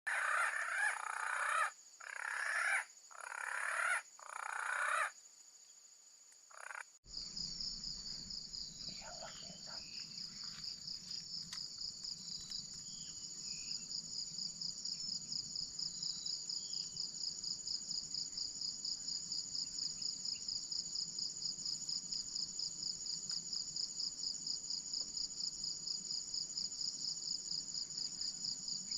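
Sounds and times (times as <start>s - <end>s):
high-pitched insect chirr: 0.1s - 5.2s
loud harsh bird calls: 0.1s - 5.2s.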